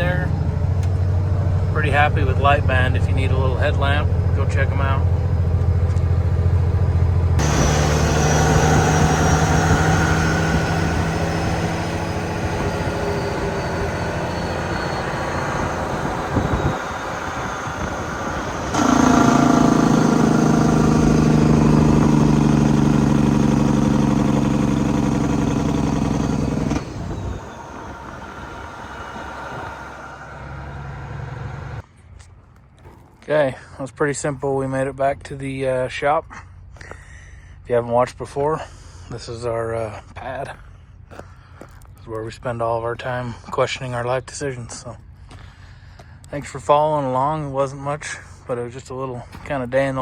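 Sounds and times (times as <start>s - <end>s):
diesel truck engine running: 0.0s - 31.8s.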